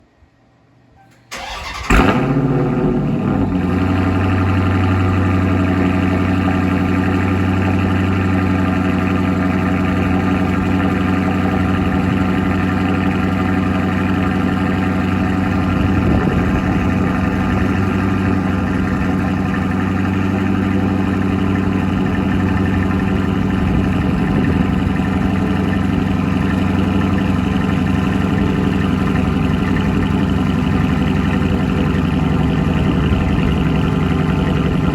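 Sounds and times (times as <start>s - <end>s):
car engine starting and idling: 1.0s - 34.9s
starter motor cranking: 1.3s - 2.3s.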